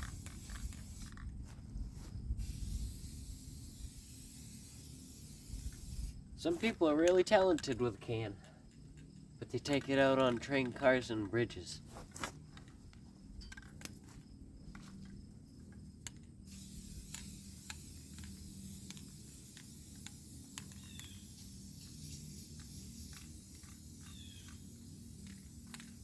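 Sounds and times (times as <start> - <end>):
spray paint can hissing: 0.0 - 1.3, 2.4 - 6.7, 16.4 - 26.0.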